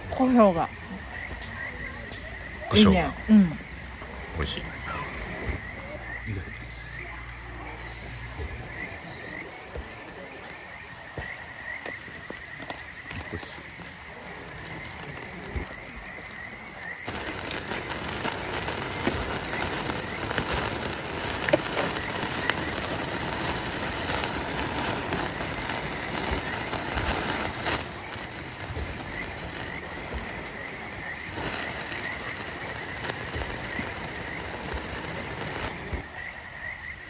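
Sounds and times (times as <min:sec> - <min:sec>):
frogs chirping: 0:00.0 - 0:37.0
loud hiss: 0:06.3 - 0:15.8, 0:17.0 - 0:35.9.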